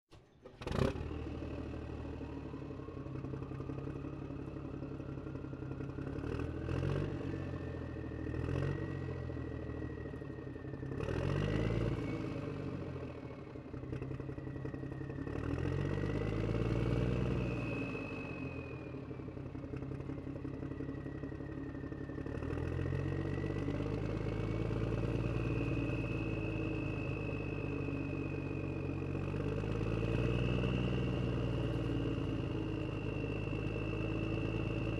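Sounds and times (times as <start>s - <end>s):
low engine-like drone: 0.1s - 34.9s
clatter: 13.5s - 18.7s.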